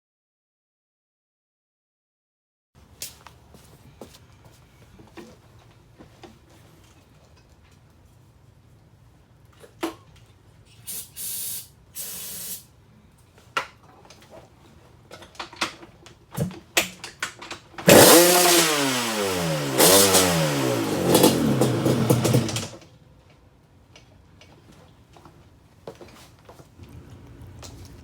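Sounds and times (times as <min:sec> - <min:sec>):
short hissing bursts: 0:10.8 - 0:12.7
two-stroke engine revving: 0:17.8 - 0:22.8.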